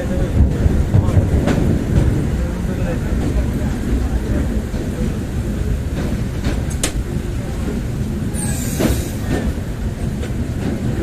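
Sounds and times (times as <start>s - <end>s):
train wheels rumbling on track: 0.0s - 11.0s
high squeal: 8.4s - 9.2s.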